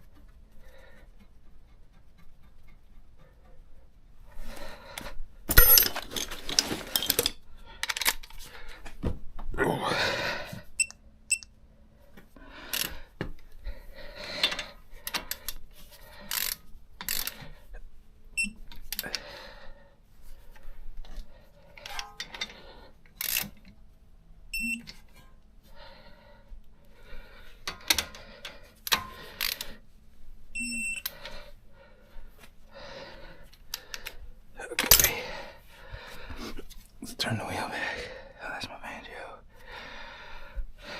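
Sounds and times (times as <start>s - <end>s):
tools and metal parts clicking: 5.5s - 8.3s, 16.3s - 17.4s, 21.8s - 23.7s, 34.8s - 35.2s
short electronic beeps: 18.4s - 18.6s, 24.6s - 24.9s.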